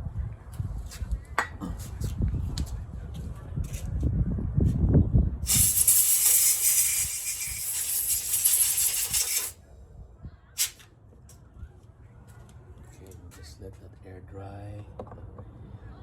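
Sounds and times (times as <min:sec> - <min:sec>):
aerosol spray hissing: 0:05.5 - 0:09.6.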